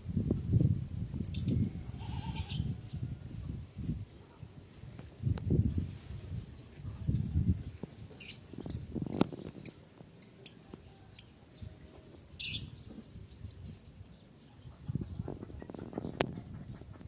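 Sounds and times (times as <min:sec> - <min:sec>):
lovebird shrill chirps: 0:01.2 - 0:02.8, 0:12.4 - 0:13.4.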